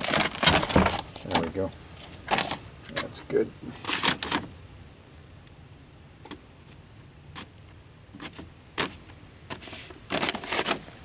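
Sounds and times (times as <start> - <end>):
plastic parts clattering: 0.0 - 1.6
hands handling plastic car door parts: 0.0 - 3.1, 3.8 - 4.5.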